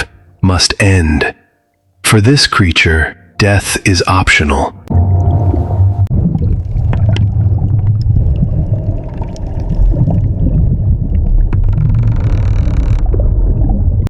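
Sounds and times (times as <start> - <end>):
deep rumble: 4.9 - 14.0.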